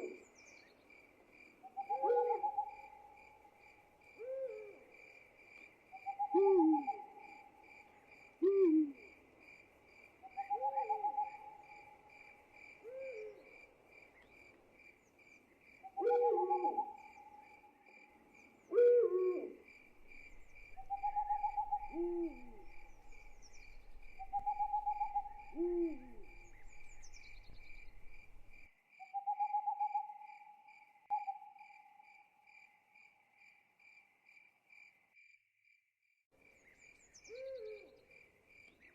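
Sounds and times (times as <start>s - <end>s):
crickets chirping: 0.0s - 35.4s
owls hooting: 1.8s - 2.8s, 6.0s - 7.3s, 16.0s - 17.1s, 18.7s - 28.4s.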